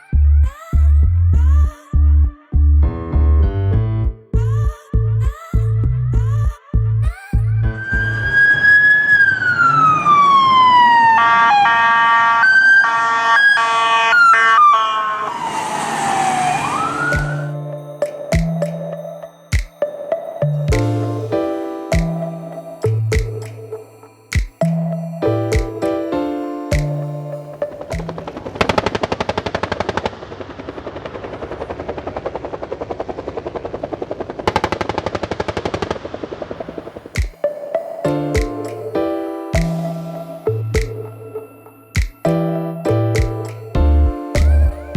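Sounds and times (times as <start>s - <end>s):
electronic siren wailing: 7.6s - 23.7s
helicopter rotor chopping: 27.8s - 37.3s.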